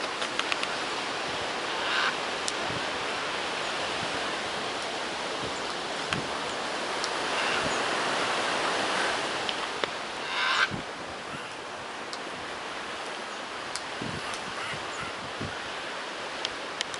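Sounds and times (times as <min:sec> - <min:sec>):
rushing wind or surf: 0:00.0 - 0:16.9
macaw squawk: 0:01.8 - 0:02.2, 0:07.3 - 0:07.8, 0:10.2 - 0:11.6, 0:14.2 - 0:15.2.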